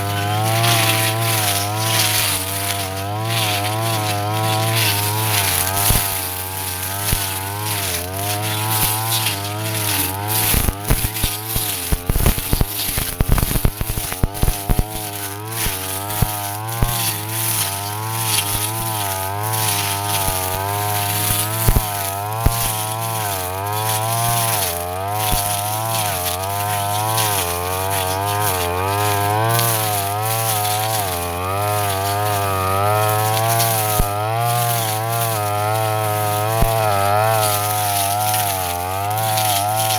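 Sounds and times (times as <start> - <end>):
brush cutter engine cutting grass: 0.0 - 39.9
sharp clicks and clatters: 0.6 - 32.5.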